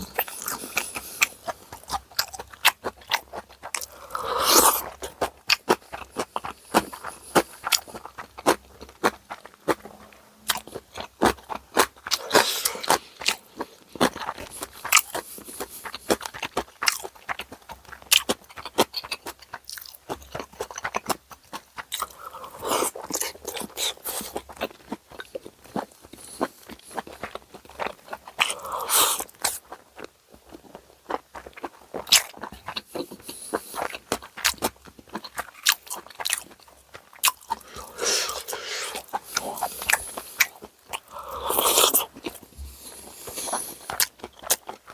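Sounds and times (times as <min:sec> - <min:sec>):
close chewing with crunching bites: 0:00.0 - 0:44.9
wet mouth clicks: 0:37.2 - 0:42.4.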